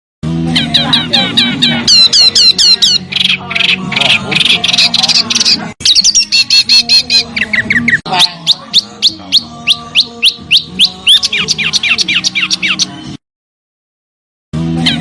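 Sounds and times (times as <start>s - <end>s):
songbird whistling: 1.9s - 13.0s.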